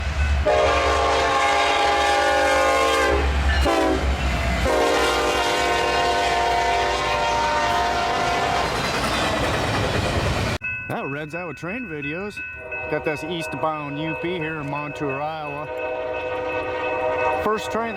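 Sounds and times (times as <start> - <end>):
train rumbling: 0.0 - 17.9
locomotive air horn blasts: 0.4 - 8.8, 15.7 - 17.7.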